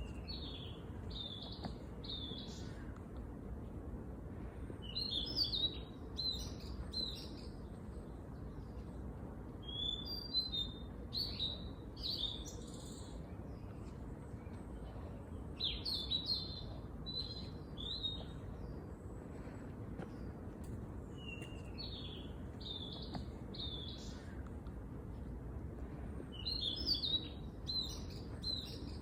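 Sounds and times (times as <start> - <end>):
low background rumble: 0.0 - 29.0
songbirds chirping and singing: 25.8 - 29.0.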